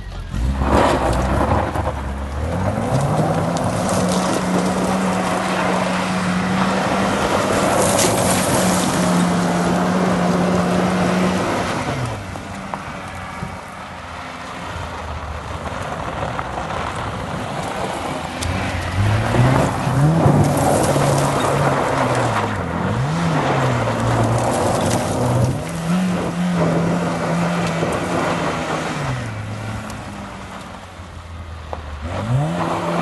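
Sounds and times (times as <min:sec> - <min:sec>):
car engine pulling: 0:00.0 - 0:33.0
wind noise: 0:14.8 - 0:29.4.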